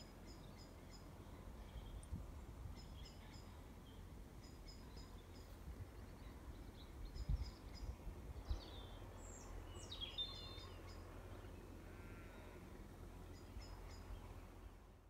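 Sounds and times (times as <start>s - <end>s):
small birds singing: 0.0s - 12.6s, 13.2s - 14.7s.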